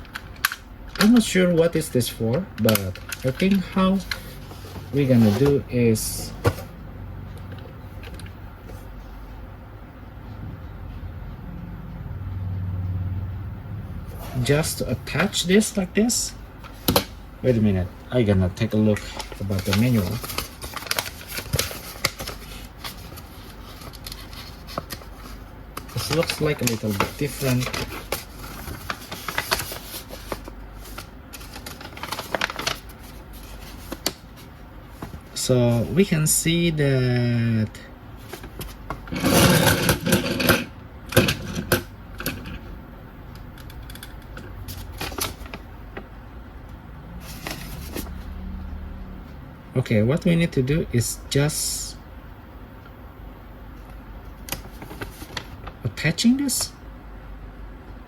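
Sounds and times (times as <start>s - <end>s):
paper pages rustling: 2.3s - 6.8s, 16.6s - 36.0s, 38.2s - 39.8s, 44.6s - 45.7s, 47.2s - 48.5s, 54.4s - 55.9s.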